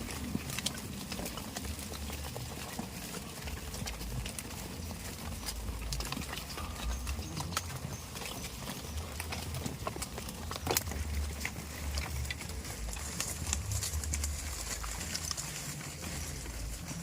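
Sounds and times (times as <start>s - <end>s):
hooves tapping on hard ground: 0.0s - 17.0s
low rumble: 3.6s - 17.0s.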